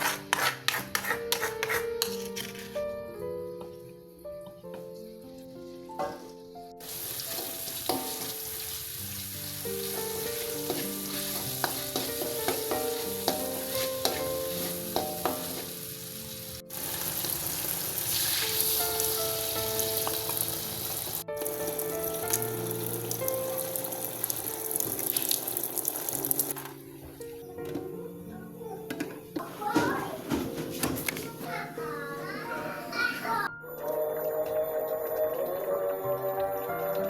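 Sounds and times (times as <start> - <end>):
light background music: 0.0 - 37.0
chicken sizzling in oil: 5.6 - 26.6.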